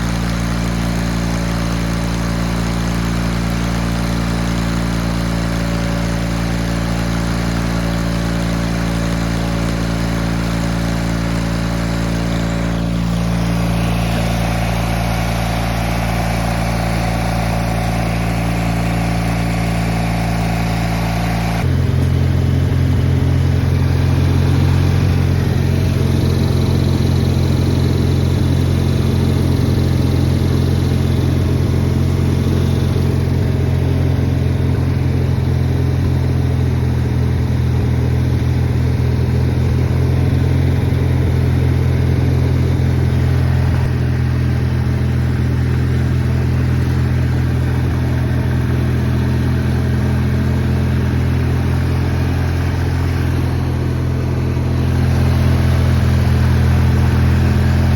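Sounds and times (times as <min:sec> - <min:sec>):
garden tractor engine running: 0:00.0 - 0:57.9.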